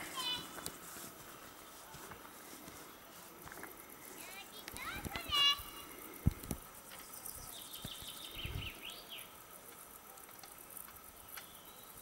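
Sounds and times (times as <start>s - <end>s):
quiet outdoor ambience: 0.0s - 12.0s
songbird whistled notes: 7.0s - 9.3s.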